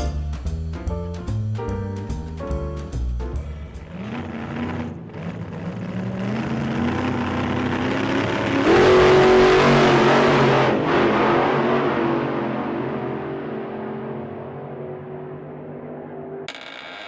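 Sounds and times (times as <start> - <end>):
car engine revving: 3.6 - 16.1.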